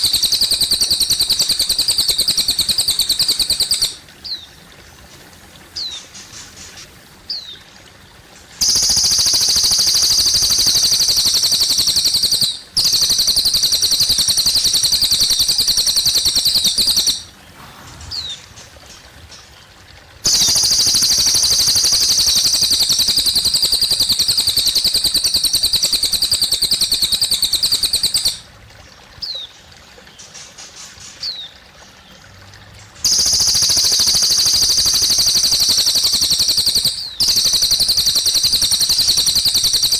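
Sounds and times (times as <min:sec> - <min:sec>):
bird singing rapid high trills: 0:00.0 - 0:04.5, 0:08.6 - 0:17.4, 0:18.0 - 0:18.6, 0:20.2 - 0:28.5, 0:33.0 - 0:39.9
gently trickling water: 0:00.0 - 0:39.9.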